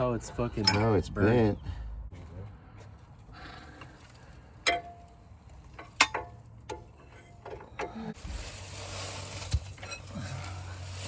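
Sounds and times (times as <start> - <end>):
metal tools clanking: 0.3 - 1.3, 4.6 - 8.2.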